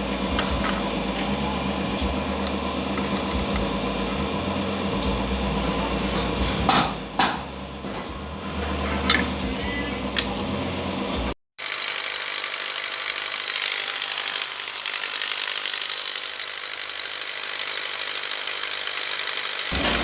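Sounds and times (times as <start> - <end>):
power tool hissing on metal: 10.9 - 20.0.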